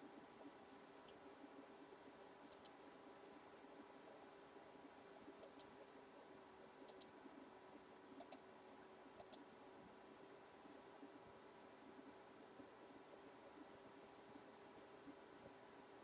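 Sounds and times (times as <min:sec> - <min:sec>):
quiet steady hum: 0:00.0 - 0:16.0
computer mouse double-clicks: 0:00.9 - 0:01.2, 0:02.5 - 0:02.8, 0:05.4 - 0:05.7, 0:06.9 - 0:07.1, 0:08.2 - 0:08.4, 0:09.2 - 0:09.4.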